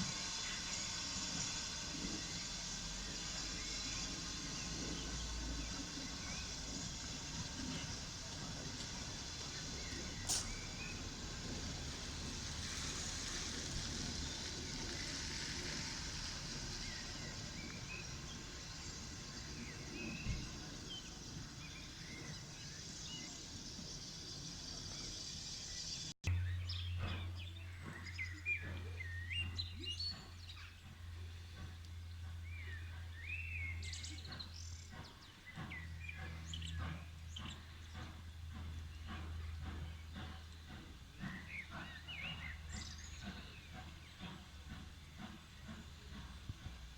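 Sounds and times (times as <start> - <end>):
steady hiss: 0.0 - 26.2
small birds chirping: 13.3 - 46.9.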